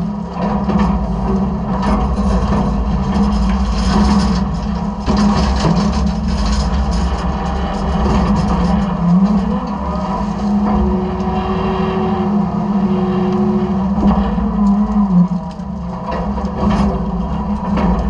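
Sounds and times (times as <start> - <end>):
garbage truck engine and hydraulics: 0.0 - 18.0.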